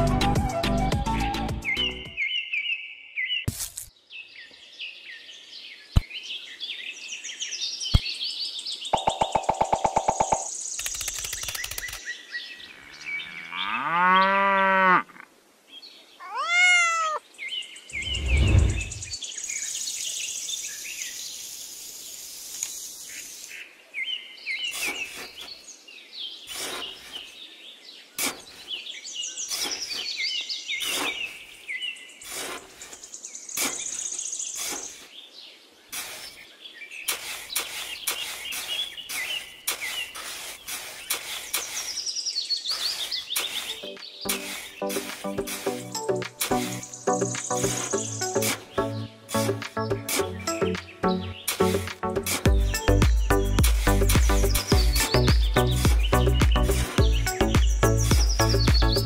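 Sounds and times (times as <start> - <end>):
birds chirping: 0.4 - 14.6, 15.8 - 21.4, 22.6 - 59.0
trowel scraping damp sand: 24.7 - 25.6, 26.4 - 27.4, 28.2 - 35.1, 35.9 - 46.9, 47.6 - 50.4, 51.4 - 52.6.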